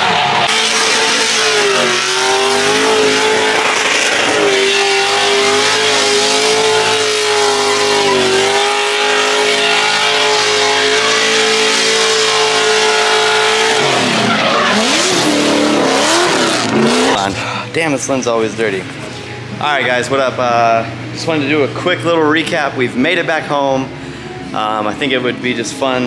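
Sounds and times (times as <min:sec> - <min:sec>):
car engine at high revs: 0:00.0 - 0:17.6.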